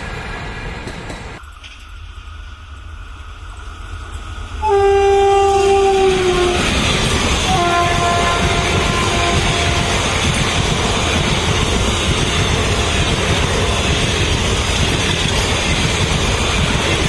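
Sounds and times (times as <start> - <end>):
train rushing and rumbling: 0.0 - 17.0
train horn blasts: 4.6 - 6.8, 7.4 - 10.2.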